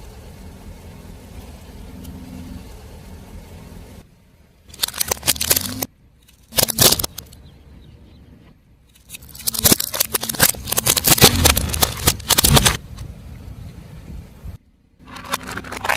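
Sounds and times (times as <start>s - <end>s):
car engine rumbling: 0.0s - 15.9s
tyre crushing brittle objects: 4.7s - 7.3s, 8.9s - 12.8s, 15.0s - 15.9s.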